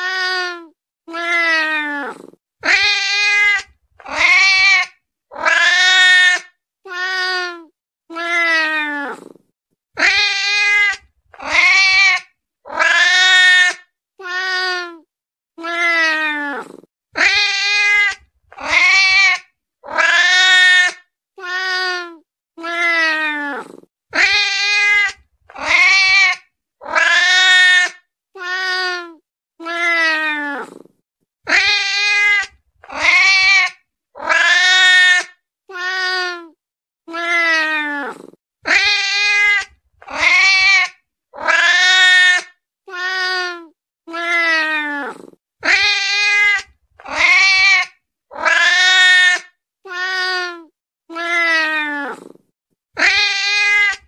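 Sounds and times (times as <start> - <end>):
cat meowing: 0.0 - 9.4, 31.5 - 52.4, 53.0 - 54.0.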